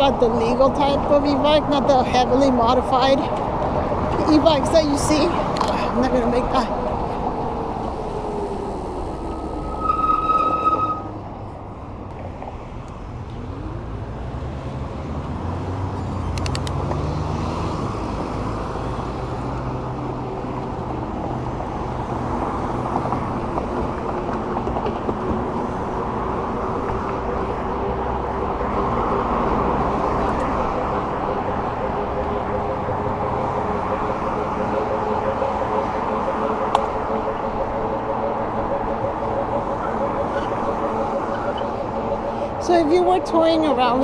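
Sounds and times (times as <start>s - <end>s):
road traffic passing: 0.0s - 44.0s
wind and tyre noise: 0.0s - 44.0s
high beep: 9.2s - 11.2s.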